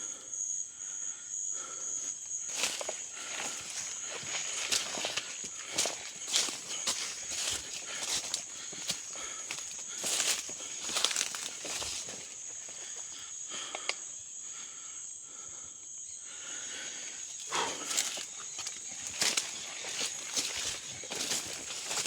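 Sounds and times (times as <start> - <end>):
footsteps in leaf litter: 2.5 - 12.2, 19.1 - 22.0.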